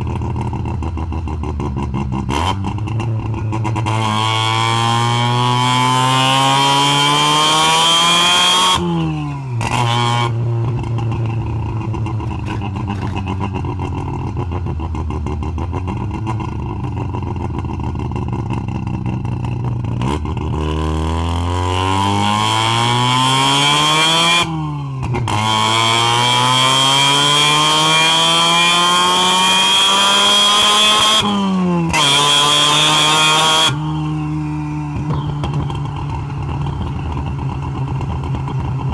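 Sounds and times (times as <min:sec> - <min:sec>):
rotary engine accelerating: 0:01.5 - 0:16.6, 0:25.2 - 0:38.9.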